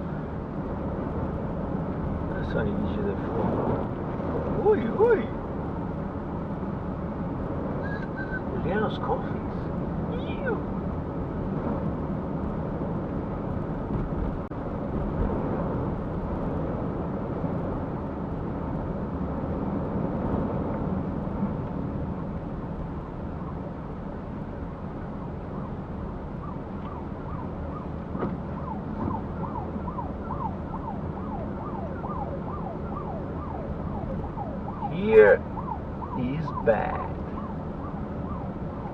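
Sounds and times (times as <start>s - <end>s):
road and engine noise in car: 0.0s - 38.9s
siren yelping: 7.8s - 8.5s, 28.6s - 38.9s.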